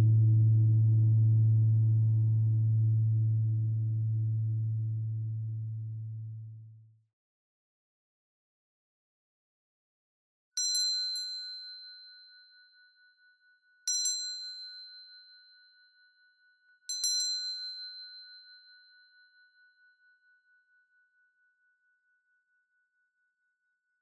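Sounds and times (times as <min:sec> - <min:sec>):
meditation bell ringing: 0:13.9 - 0:20.4.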